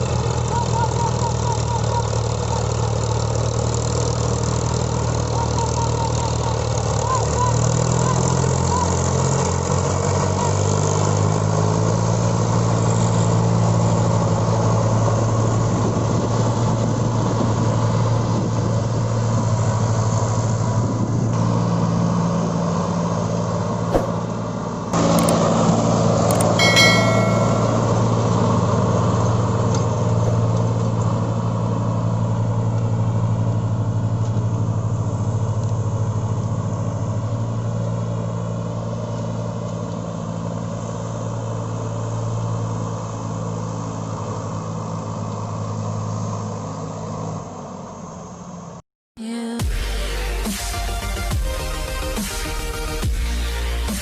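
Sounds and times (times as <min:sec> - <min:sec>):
tractor diesel engine running: 0:00.0 - 0:48.4
brief high tone: 0:26.3 - 0:28.3.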